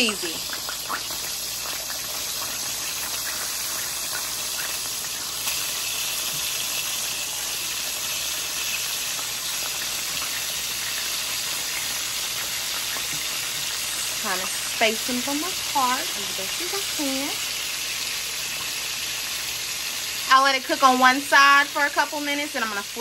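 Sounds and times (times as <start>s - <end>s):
pork frying in oil: 0.0s - 23.0s.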